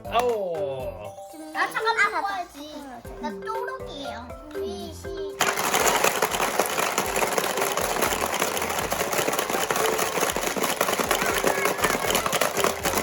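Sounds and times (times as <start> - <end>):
plastic game pieces clattering: 5.4 - 13.0.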